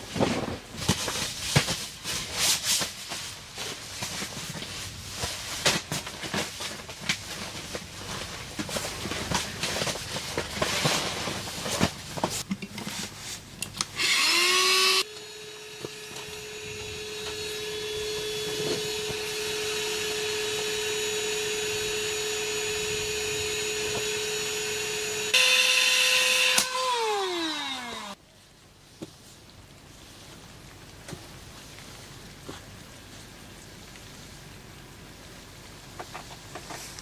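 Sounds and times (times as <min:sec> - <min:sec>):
small electric motor whining: 0:14.0 - 0:28.2
knocking and scraping: 0:35.9 - 0:37.0.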